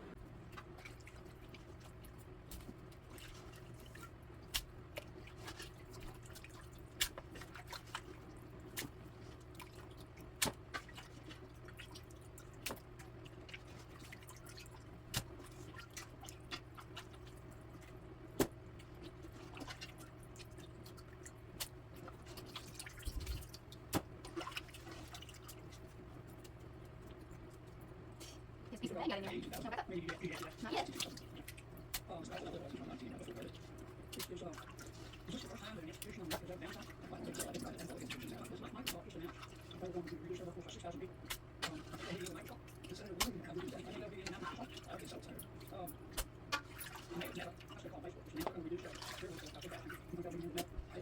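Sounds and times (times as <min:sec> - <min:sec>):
faint low hum: 0:00.0 - 0:51.0
broth dripping through a strainer: 0:00.2 - 0:28.7.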